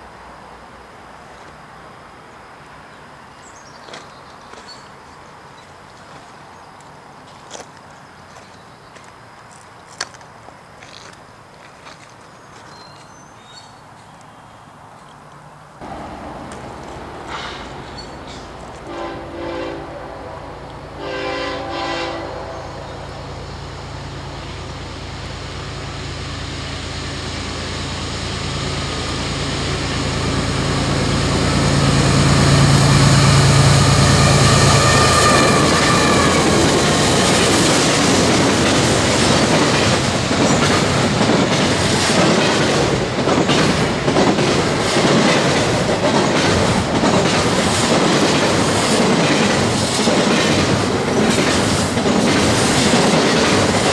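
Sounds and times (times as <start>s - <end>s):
locomotive engines passing: 13.8s - 53.9s
train wheels clattering over rail joints: 15.9s - 18.9s, 35.0s - 53.9s
locomotive horn blasts: 18.8s - 23.0s, 32.2s - 36.7s.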